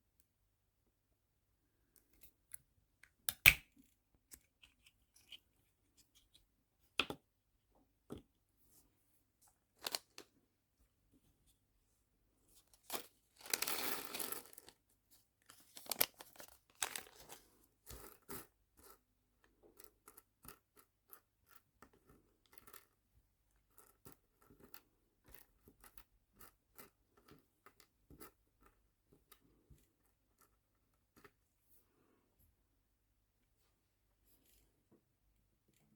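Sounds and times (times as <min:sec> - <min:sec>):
packaging crinkling and tearing: 0:12.8 - 0:14.7, 0:15.5 - 0:17.4.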